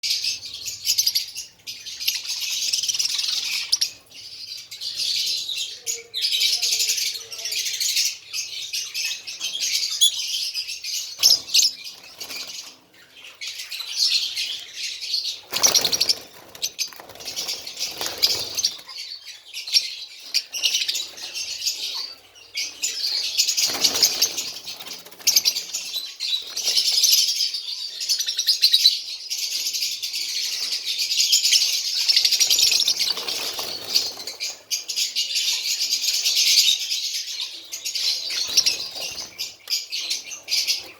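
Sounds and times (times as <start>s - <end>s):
pet birds chirping: 0.0s - 40.9s
wings fluttering: 15.4s - 19.0s, 23.5s - 27.0s, 32.4s - 34.6s.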